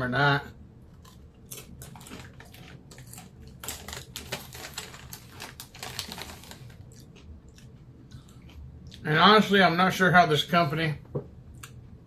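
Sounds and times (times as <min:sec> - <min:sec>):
potato chips crunching while chewed: 0:00.9 - 0:09.0.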